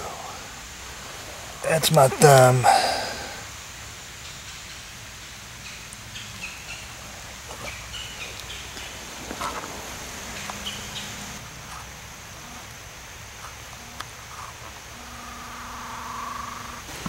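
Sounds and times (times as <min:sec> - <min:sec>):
low background noise: 0:00.0 - 0:17.0
faint bird chirps: 0:14.9 - 0:16.9.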